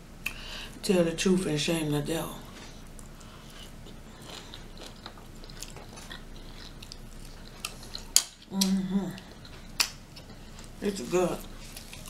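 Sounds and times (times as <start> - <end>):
person chewing: 2.5 - 12.0.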